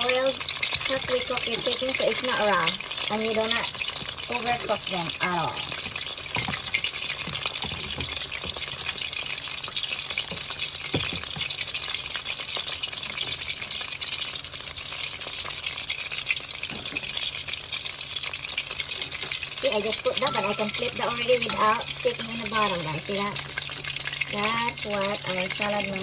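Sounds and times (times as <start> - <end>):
oil sizzling: 0.0 - 26.0
crackles and pops in oil: 5.6 - 11.9.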